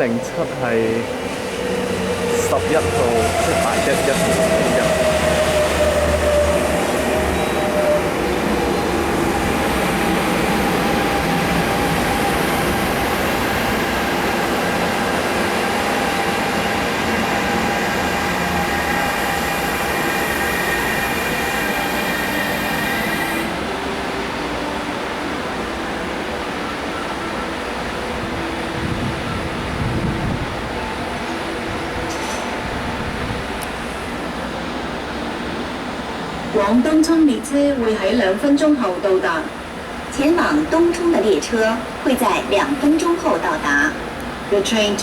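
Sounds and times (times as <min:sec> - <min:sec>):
train running noise: 0:00.0 - 0:45.0
electric train motor whine: 0:04.2 - 0:23.8.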